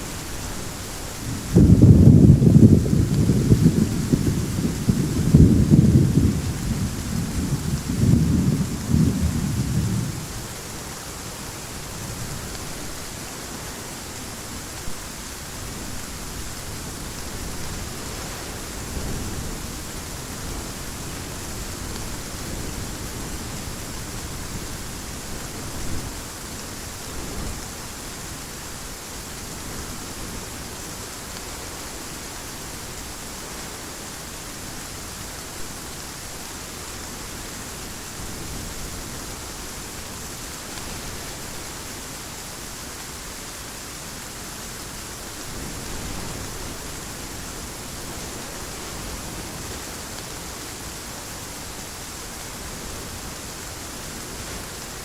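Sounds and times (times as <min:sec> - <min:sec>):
heavy rain falling: 0:00.0 - 0:55.0
thunder rumbling: 0:00.1 - 0:11.2.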